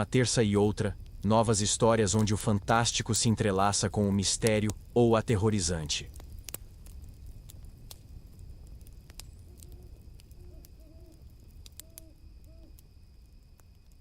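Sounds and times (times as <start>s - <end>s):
campfire crackling and popping: 0.0s - 14.0s
faint steady high tone: 8.2s - 14.0s
owl hooting: 9.3s - 12.9s.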